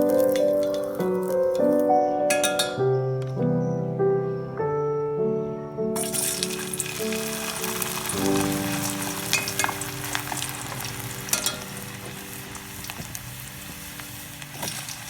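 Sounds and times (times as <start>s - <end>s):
fries sizzling in hot oil: 0.0s - 2.7s, 6.0s - 15.0s
background music: 0.0s - 15.0s.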